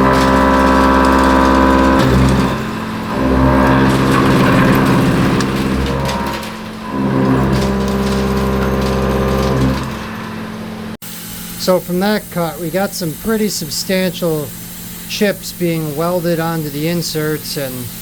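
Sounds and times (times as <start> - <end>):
face mill cutting steel: 0.0 - 11.0.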